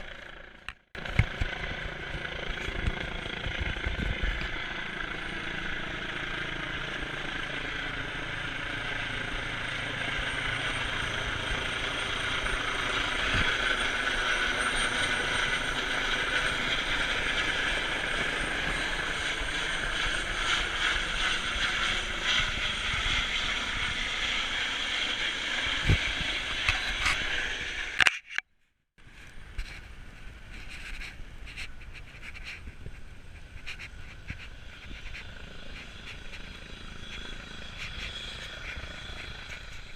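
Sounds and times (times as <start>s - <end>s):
helicopter running: 0.0s - 28.3s, 29.0s - 39.9s.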